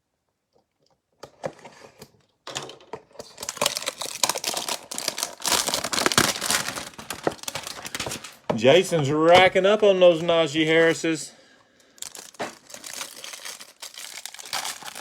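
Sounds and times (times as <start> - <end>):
plastic wrapper crinkling: 3.2 - 11.2, 11.8 - 15.0
cardboard tearing: 3.4 - 8.4, 12.0 - 15.0.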